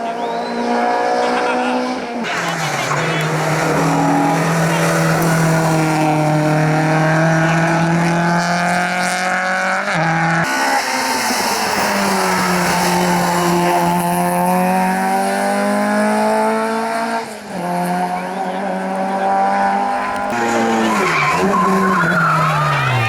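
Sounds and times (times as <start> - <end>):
tyres squealing: 0.0 - 7.4, 19.8 - 23.0
race car engine revving high: 0.0 - 23.0.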